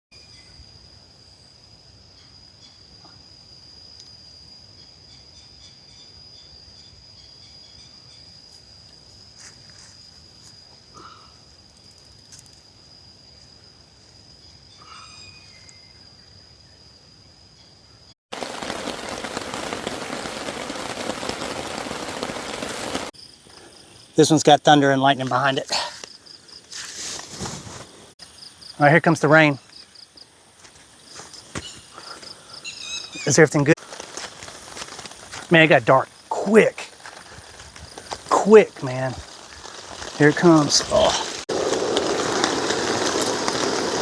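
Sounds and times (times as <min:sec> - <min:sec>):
high insect drone: 0:00.1 - 0:44.0
bird chirps: 0:14.7 - 0:16.4, 0:31.6 - 0:33.4
heavy rain hissing: 0:18.3 - 0:23.2, 0:33.2 - 0:44.0.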